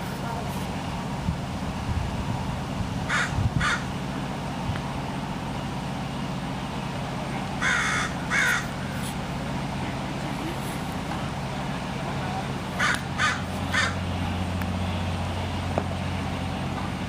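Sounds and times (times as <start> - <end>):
steady low hum: 0.0 - 17.0
crow cawing: 3.1 - 3.9, 7.6 - 8.9, 12.8 - 14.0.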